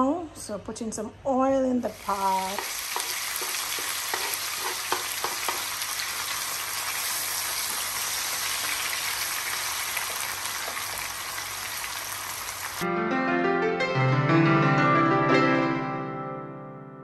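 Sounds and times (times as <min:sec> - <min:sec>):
vegetables sizzling in a frying pan: 0:01.8 - 0:12.8
wooden spatula stirring: 0:02.1 - 0:05.7.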